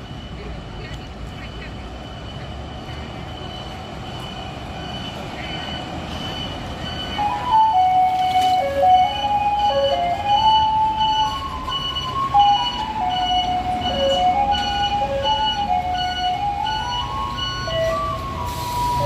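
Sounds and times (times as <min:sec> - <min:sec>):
diesel engine idling: 0:00.0 - 0:19.0
electronic melody through loudspeaker: 0:06.9 - 0:19.0.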